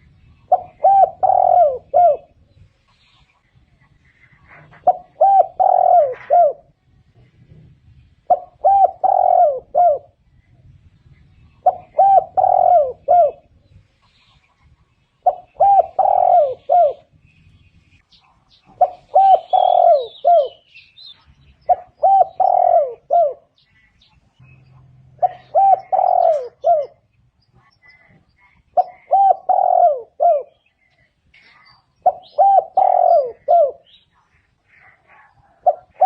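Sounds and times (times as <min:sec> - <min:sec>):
dove cooing: 0:00.0 - 0:02.5, 0:04.4 - 0:06.8, 0:08.2 - 0:10.2, 0:11.4 - 0:13.6, 0:15.2 - 0:17.2, 0:18.6 - 0:20.7, 0:21.7 - 0:23.6, 0:25.1 - 0:27.1, 0:28.7 - 0:31.0, 0:32.0 - 0:34.0, 0:34.6 - 0:36.0
faint high bird chirps: 0:10.4 - 0:35.9.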